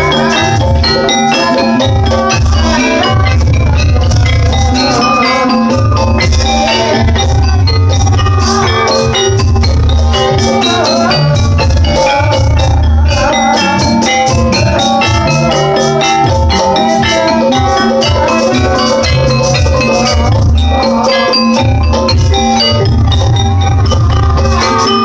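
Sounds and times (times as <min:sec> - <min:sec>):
deep drum beats: 0:00.0 - 0:25.0
gamelan metal keys and gongs: 0:00.0 - 0:25.0.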